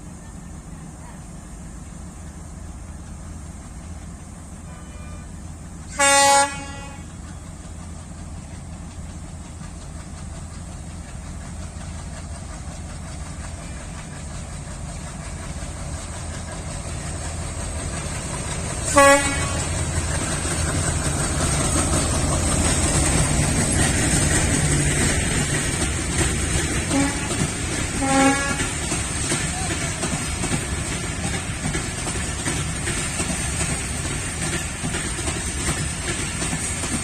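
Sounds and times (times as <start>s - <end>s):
train rumbling: 0.0s - 37.0s
locomotive horn toots: 4.6s - 7.2s, 18.8s - 19.9s, 26.8s - 28.9s.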